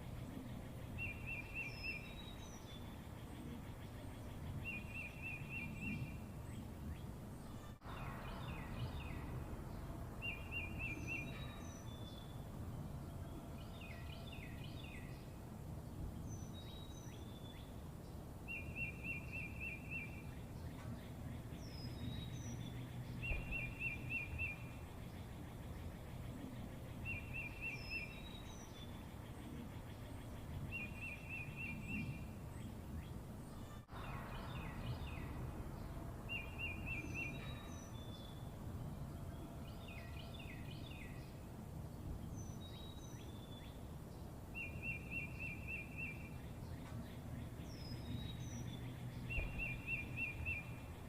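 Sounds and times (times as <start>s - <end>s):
songbirds singing: 0.0s - 51.0s.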